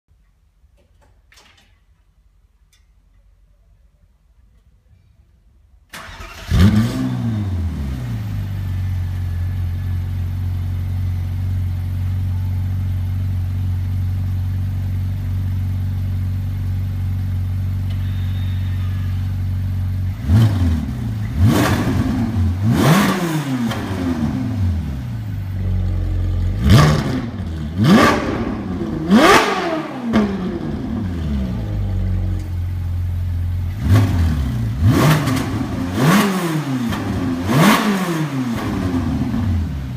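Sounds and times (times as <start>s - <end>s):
car engine revving: 6.0s - 12.0s, 17.9s - 39.9s
car engine idling: 8.2s - 22.9s, 23.6s - 29.5s, 30.2s - 35.9s.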